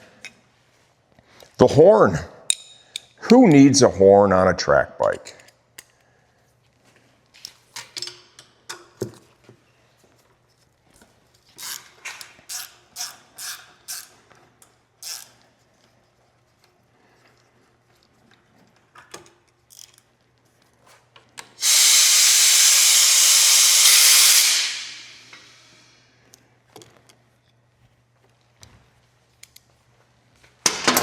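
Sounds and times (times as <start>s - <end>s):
ratchet wrench clicking: 11.6s - 14.1s, 15.0s - 15.4s, 21.6s - 25.8s
spray hiss: 21.6s - 25.9s.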